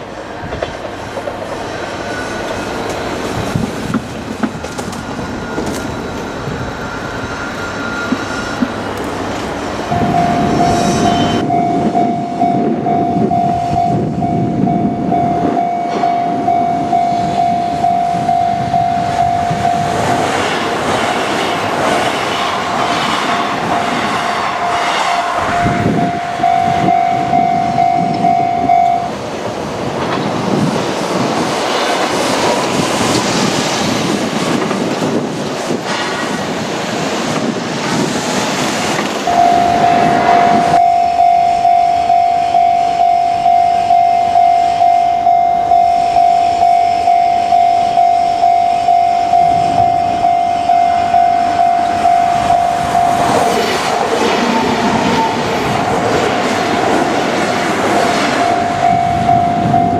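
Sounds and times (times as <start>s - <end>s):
train wheels clacking over rail joints: 0.4s - 6.3s, 8.0s - 9.5s
level crossing warning bell: 9.9s - 20.3s, 23.6s - 29.2s, 39.2s - 53.6s, 58.4s - 59.9s.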